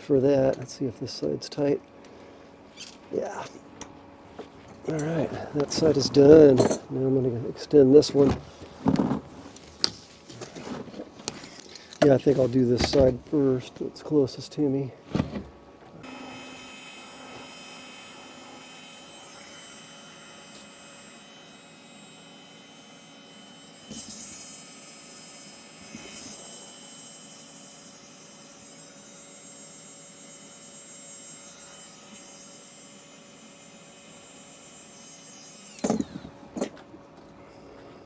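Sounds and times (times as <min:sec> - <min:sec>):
steady background hum: 0:00.0 - 0:38.0
handling noises: 0:08.1 - 0:14.0.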